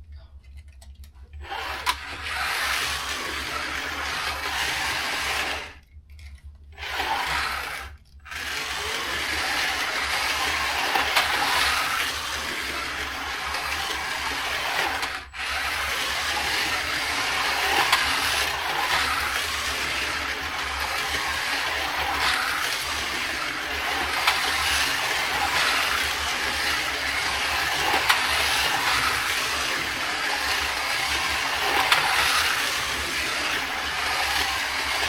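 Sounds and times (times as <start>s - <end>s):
wheels rattling on plastic track: 0.4s - 35.0s
slot car motors whirring: 0.6s - 35.0s.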